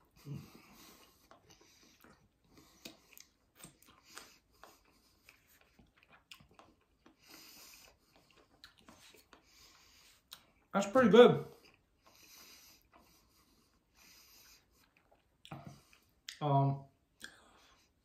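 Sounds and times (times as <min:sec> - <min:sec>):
faint chewing: 0:00.0 - 0:10.7, 0:11.5 - 0:16.4, 0:17.0 - 0:18.0
breaths: 0:00.1 - 0:03.3, 0:08.9 - 0:10.3, 0:11.5 - 0:14.8.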